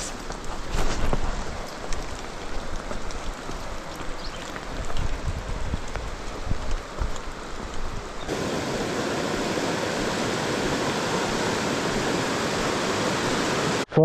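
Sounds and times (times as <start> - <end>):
light rain pattering: 0.0 - 13.4
fast-flowing creek rushing: 0.0 - 13.9.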